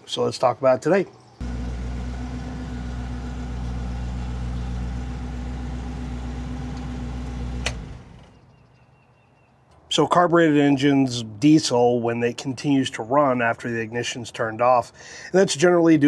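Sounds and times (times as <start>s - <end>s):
car engine idling: 1.4s - 8.3s
engine winding down: 1.4s - 8.4s.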